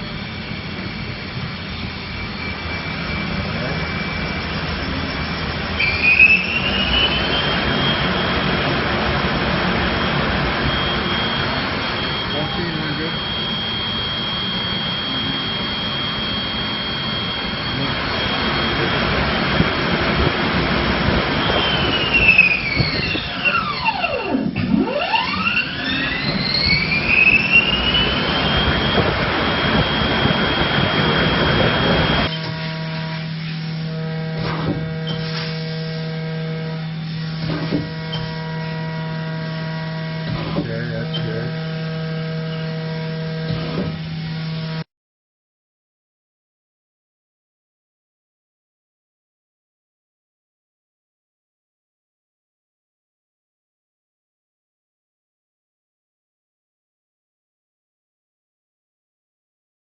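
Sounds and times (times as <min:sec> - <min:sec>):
rushing noise: 0:00.0 - 0:24.0, 0:25.4 - 0:32.4
lathe spindle humming and whining: 0:00.0 - 0:44.9.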